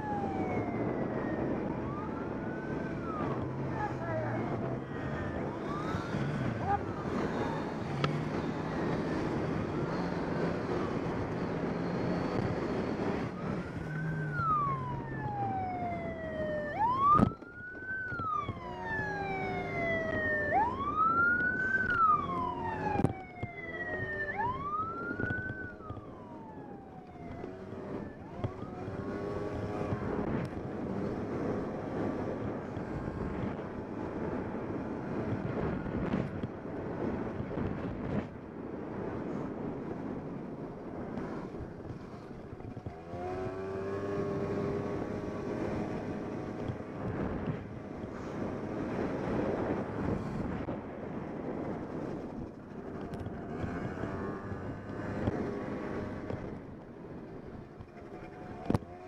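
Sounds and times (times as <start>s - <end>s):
police siren wailing: 0.0s - 36.3s
vehicle engine: 0.0s - 38.2s, 38.9s - 59.0s
road noise: 0.0s - 59.0s.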